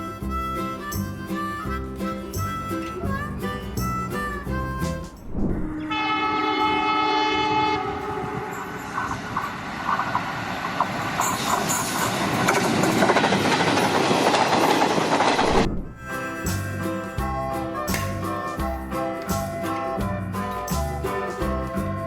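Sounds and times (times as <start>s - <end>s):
music: 0.0s - 5.3s, 16.0s - 22.0s
passing train rumble and clatter: 5.0s - 16.0s
train horn: 5.6s - 9.6s.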